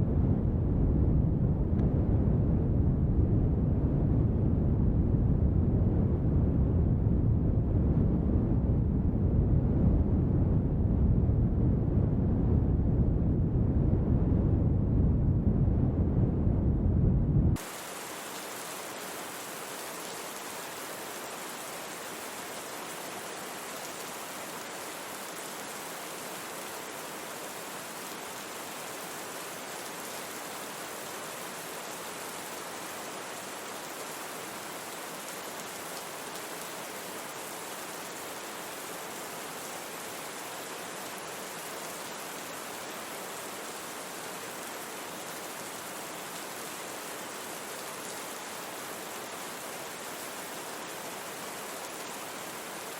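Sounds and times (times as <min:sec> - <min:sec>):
steady rain: 0:17.6 - 0:52.9.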